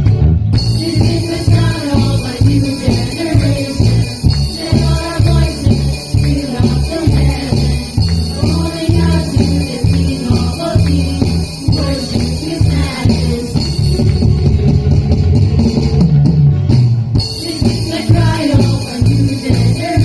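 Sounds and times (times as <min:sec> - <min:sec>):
band playing a steady beat: 0:00.0 - 0:20.0
people singing worship music: 0:00.8 - 0:13.9, 0:17.4 - 0:20.0.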